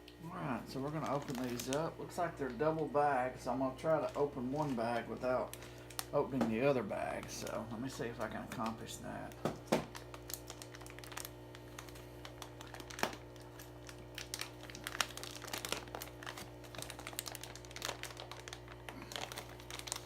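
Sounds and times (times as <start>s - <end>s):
steady low hum: 0.0s - 20.0s
plastic bags crinkling: 0.2s - 20.0s.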